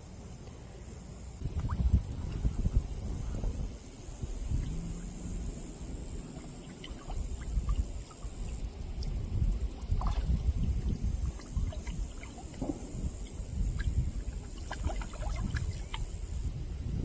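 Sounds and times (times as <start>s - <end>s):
wind rumbling on microphone: 1.4s - 17.0s
fish splashing at water surface: 5.7s - 8.6s, 11.0s - 16.2s.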